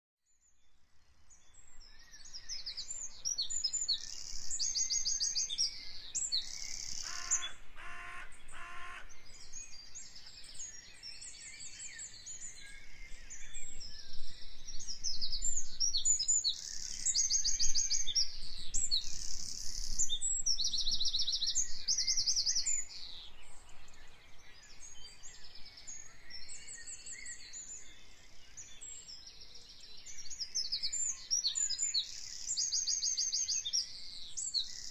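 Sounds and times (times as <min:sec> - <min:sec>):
songbirds trilling and chirping: 0:00.3 - 0:34.9
lower bird call: 0:05.9 - 0:10.4.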